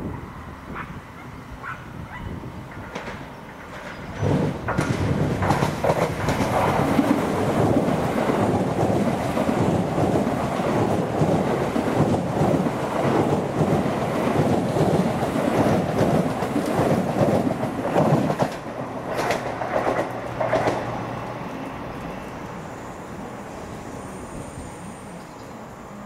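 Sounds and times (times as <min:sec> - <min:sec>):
train passing at speed: 0:00.0 - 0:26.0
wheel clacks: 0:02.9 - 0:20.9.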